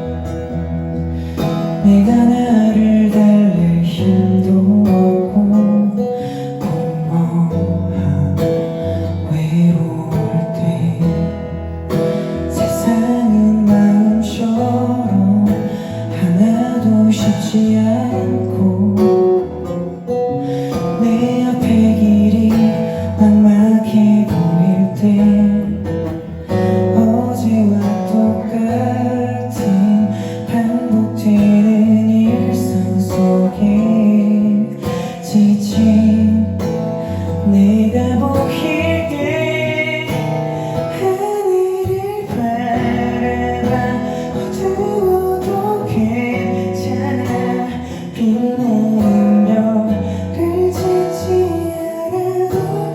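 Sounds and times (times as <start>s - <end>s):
acoustic guitar chords: 0.0s - 52.9s
person singing: 12.0s - 52.9s.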